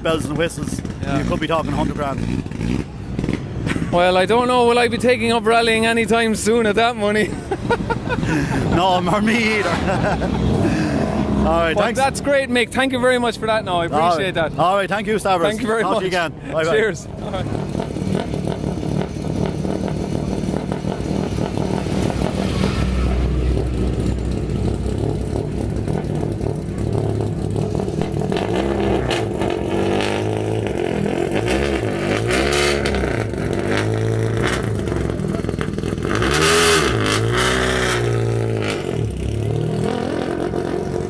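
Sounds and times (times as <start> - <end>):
rally car engine revving: 8.1 - 12.2, 17.2 - 41.0.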